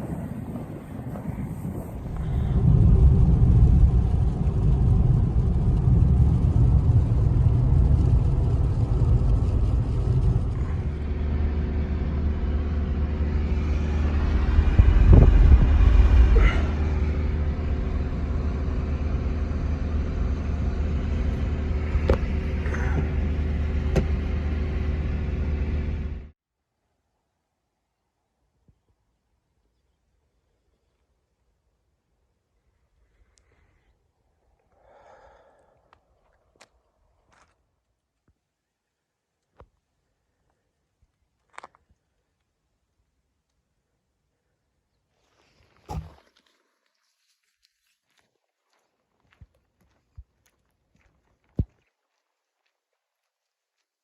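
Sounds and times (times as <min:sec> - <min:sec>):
motor vehicle engine rumbling: 0:00.0 - 0:26.4.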